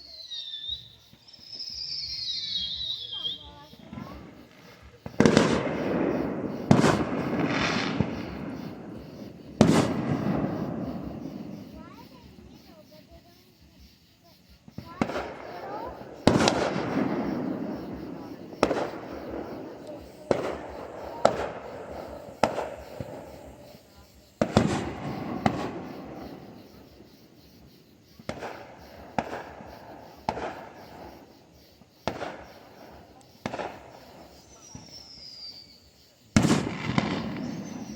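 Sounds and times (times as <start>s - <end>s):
fireworks crackling hiss: 0.0s - 37.9s
fireworks booming: 1.0s - 37.9s.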